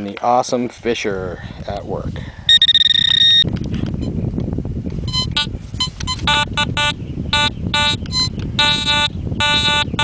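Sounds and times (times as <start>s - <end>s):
metal detector beeps: 2.5s - 3.5s, 5.1s - 10.0s.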